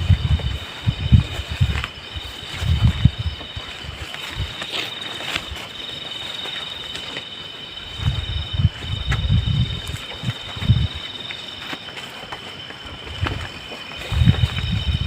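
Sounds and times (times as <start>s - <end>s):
low thumps and rumbles: 0.0s - 4.5s, 7.9s - 11.0s, 13.1s - 15.0s
night insects trilling: 0.0s - 15.0s.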